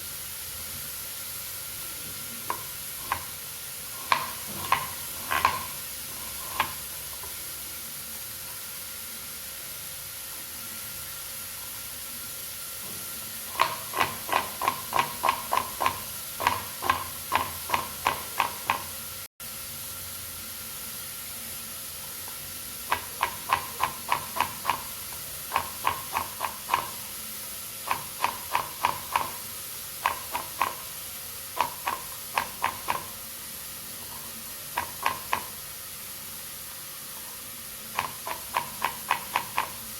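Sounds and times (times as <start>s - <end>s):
knife chopping vegetables: 4.0s - 7.4s, 13.0s - 19.0s, 22.9s - 27.0s, 27.8s - 31.0s, 31.6s - 33.2s, 34.1s - 35.6s, 37.9s - 39.9s.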